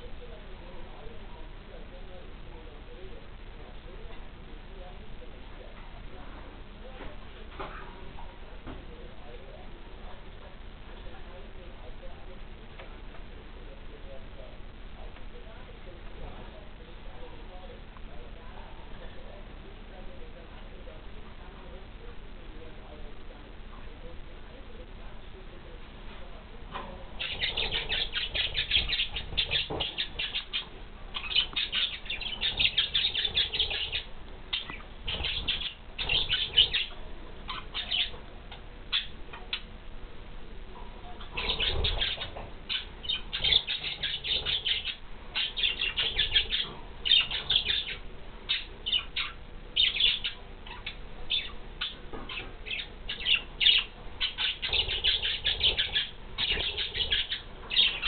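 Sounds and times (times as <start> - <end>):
budgies chirping: 26.7 - 39.7, 41.0 - 58.0.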